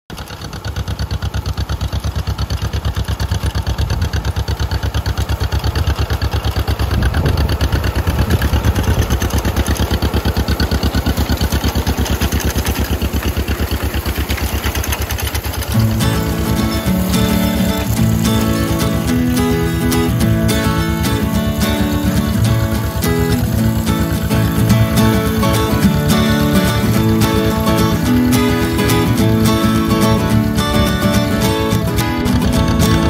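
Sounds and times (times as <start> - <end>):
tractor engine running: 0.1 - 33.0
music: 15.8 - 33.0.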